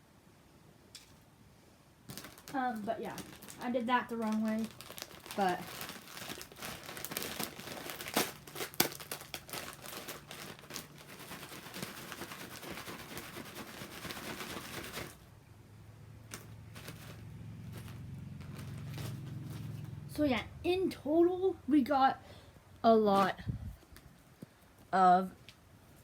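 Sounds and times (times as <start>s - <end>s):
plastic packaging crinkling: 2.1s - 15.3s, 16.3s - 20.0s.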